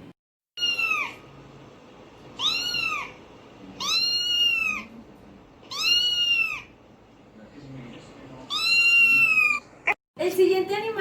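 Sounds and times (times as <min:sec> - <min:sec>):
cat meowing: 0:00.6 - 0:01.2, 0:02.4 - 0:03.2, 0:03.8 - 0:05.0, 0:05.7 - 0:06.8, 0:08.5 - 0:10.0.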